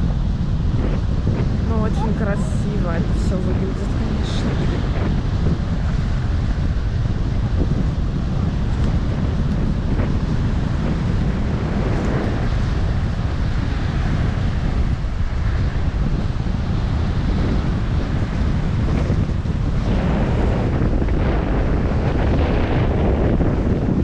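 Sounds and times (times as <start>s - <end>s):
strong wind buffeting microphone: 0.0s - 24.0s
surf breaking against shore: 0.0s - 24.0s.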